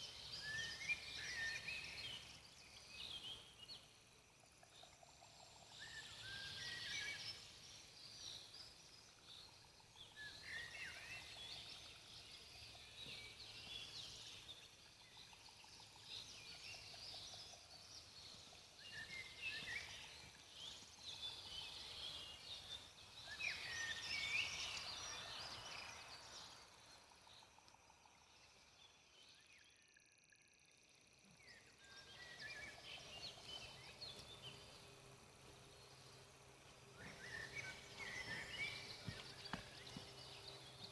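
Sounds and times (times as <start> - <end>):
faint campfire crackling: 32.0 - 40.9.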